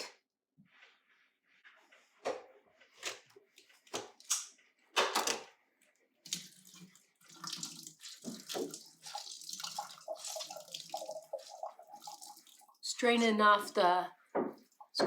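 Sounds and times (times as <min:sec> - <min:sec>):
liquid trickling through strainer: 0:06.3 - 0:12.9.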